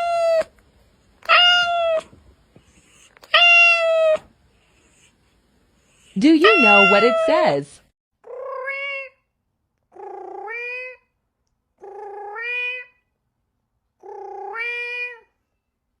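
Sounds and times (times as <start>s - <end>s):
cat meowing: 0.0s - 0.5s, 1.2s - 2.1s, 3.3s - 4.2s, 6.4s - 7.5s, 8.3s - 9.2s, 10.0s - 11.1s, 11.8s - 13.0s, 14.0s - 15.4s.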